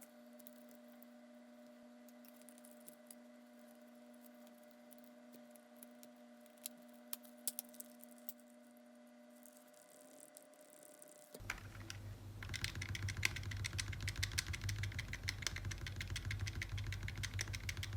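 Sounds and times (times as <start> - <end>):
faint electrical hum: 0.0 - 17.9.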